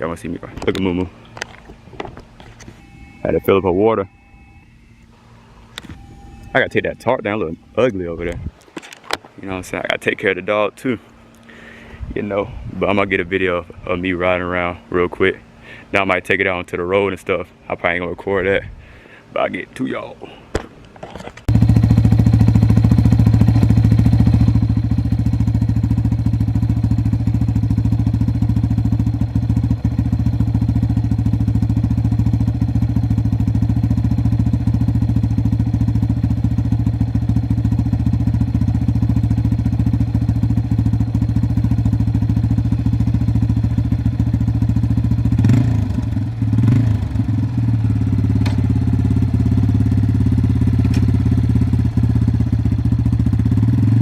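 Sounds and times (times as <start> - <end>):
dirt bike engine running: 21.0 - 54.0.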